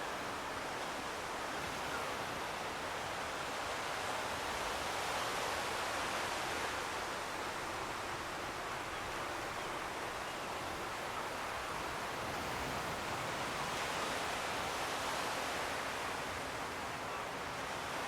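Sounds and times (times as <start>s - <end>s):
distant sea surf: 0.0s - 18.0s.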